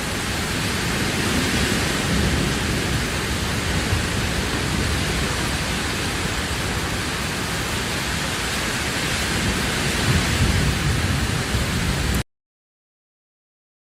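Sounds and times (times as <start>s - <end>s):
heavy rain hissing: 0.0s - 12.2s.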